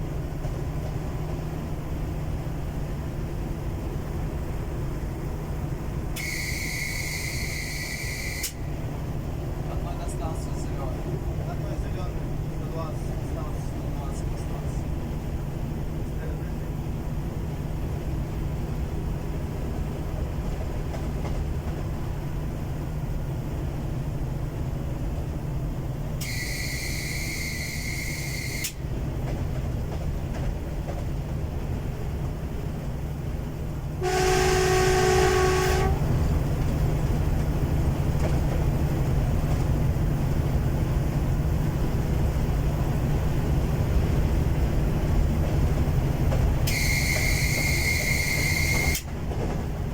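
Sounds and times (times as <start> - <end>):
diesel train rumbling: 0.0 - 49.9
high-pitched train whistle: 6.2 - 8.6, 26.2 - 28.8, 34.0 - 36.0, 46.7 - 49.1
train horn blast: 6.2 - 8.6, 34.0 - 36.2, 46.7 - 49.0.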